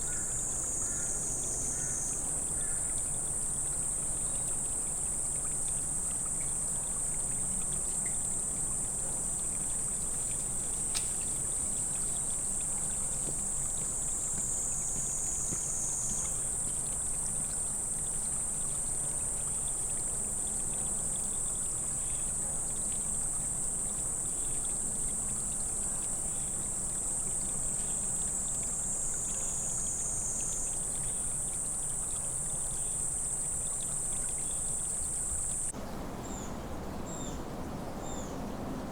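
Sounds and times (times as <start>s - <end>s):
insects buzzing: 23.6s - 38.9s.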